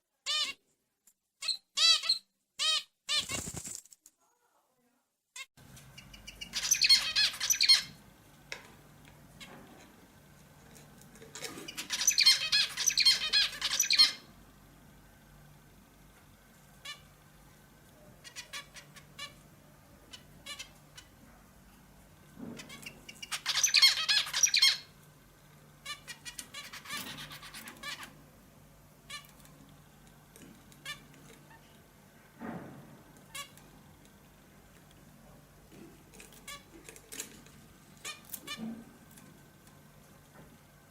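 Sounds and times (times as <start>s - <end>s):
rapid chattering birdsong: 5.9s - 8.0s, 11.7s - 14.3s, 22.7s - 24.9s, 25.8s - 28.2s.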